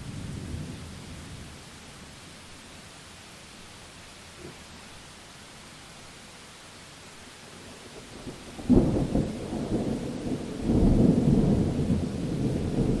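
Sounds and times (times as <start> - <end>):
thunder rumbling: 0.0 - 2.2, 8.1 - 13.0
rain hiss: 0.0 - 13.0.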